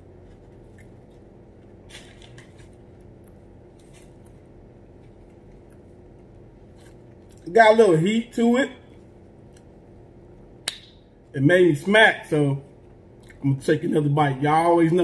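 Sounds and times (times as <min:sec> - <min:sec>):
low room hum: 0:00.0 - 0:15.0
faint chewing: 0:00.1 - 0:07.5, 0:13.1 - 0:13.4.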